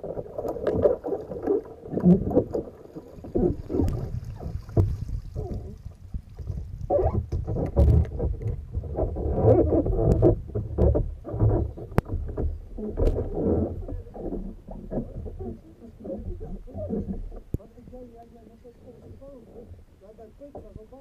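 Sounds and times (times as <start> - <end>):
water splashing against kayak: 0.0 - 21.0.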